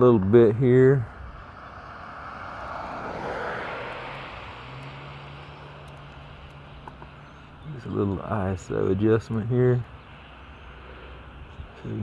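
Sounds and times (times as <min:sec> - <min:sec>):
passing engine rush: 0:01.0 - 0:07.6.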